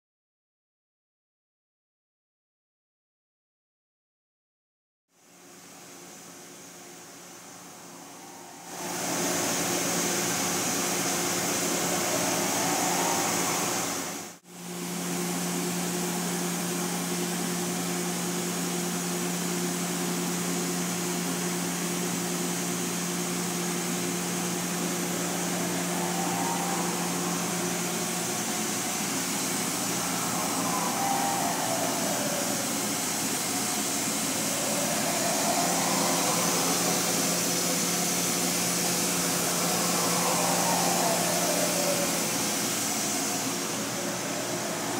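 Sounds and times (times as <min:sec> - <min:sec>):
machining center humming: 0:22.9 - 0:44.9.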